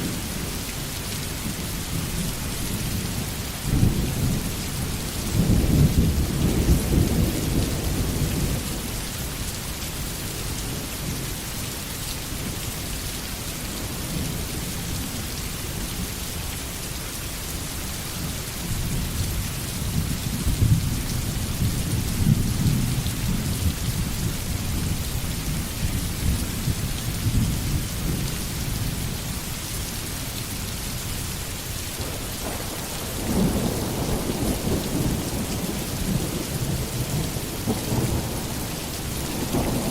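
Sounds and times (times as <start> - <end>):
steady rain falling: 0.0 - 39.9
thunder rumbling: 32.0 - 39.9.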